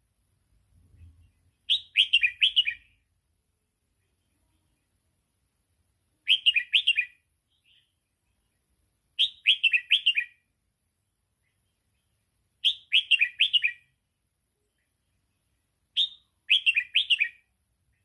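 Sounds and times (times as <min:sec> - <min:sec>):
bird whistled song: 0:01.6 - 0:03.0, 0:06.2 - 0:08.0, 0:09.2 - 0:10.5, 0:12.6 - 0:14.0, 0:15.9 - 0:17.5.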